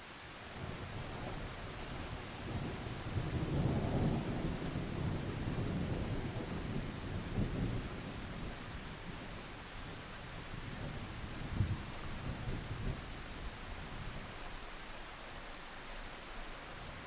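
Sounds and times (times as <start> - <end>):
steady rainfall: 0.0 - 17.0
distant thunder rumbling: 0.6 - 9.2.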